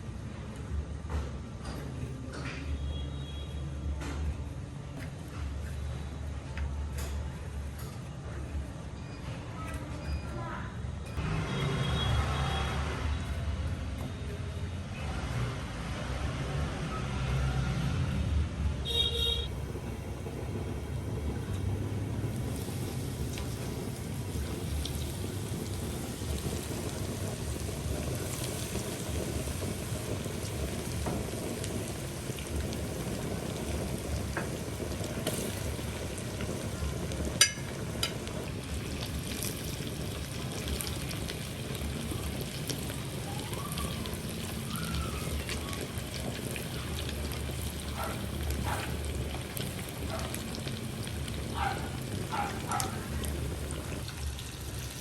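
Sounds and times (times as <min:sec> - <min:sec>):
fish sizzling in hot oil: 0:18.8 - 0:55.0.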